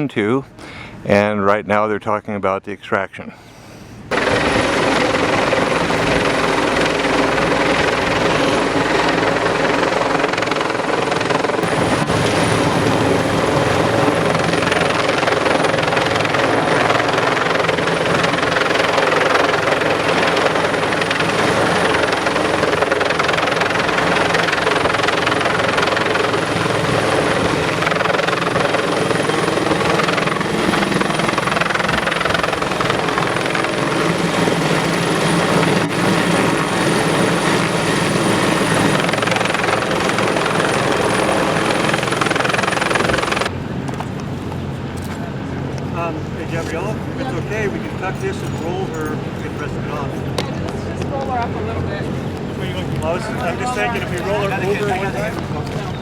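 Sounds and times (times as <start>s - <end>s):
helicopter rotor and engine drone: 3.7s - 56.0s.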